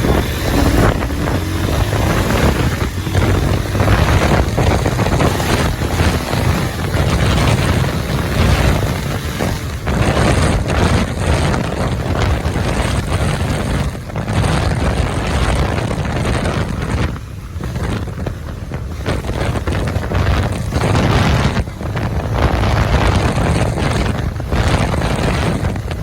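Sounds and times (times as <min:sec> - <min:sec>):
motorcycle running at speed: 0:00.0 - 0:26.0
wind buffeting microphone: 0:00.0 - 0:26.0.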